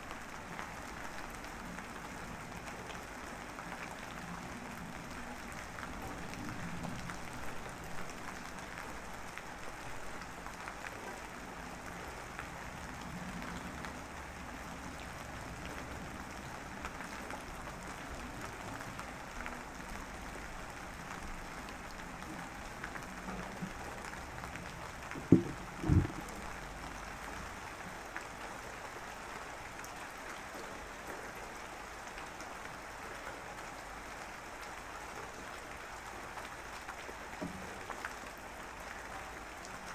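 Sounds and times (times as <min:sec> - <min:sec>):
steady rain falling: 0:00.0 - 0:39.9
dull thumps: 0:25.1 - 0:26.4.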